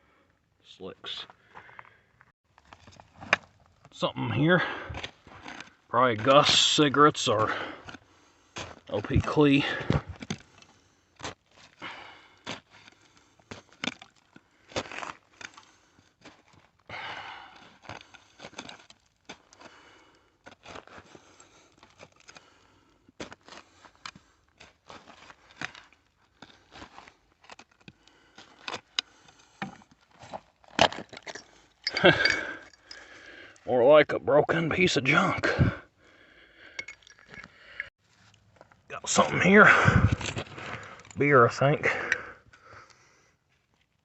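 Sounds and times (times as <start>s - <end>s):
digging through soil and glass: 2.6s - 16.9s, 17.6s - 19.7s, 20.3s - 33.9s.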